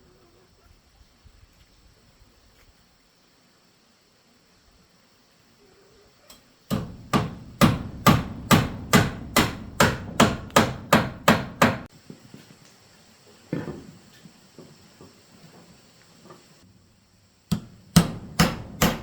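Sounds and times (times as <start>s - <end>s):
hammer striking wood: 6.7s - 11.9s, 17.5s - 19.0s.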